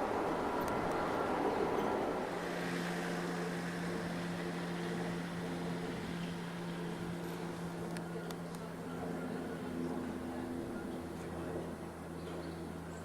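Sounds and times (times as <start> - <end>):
train rumbling past: 0.0 - 7.8
diesel engine drone: 0.0 - 13.0.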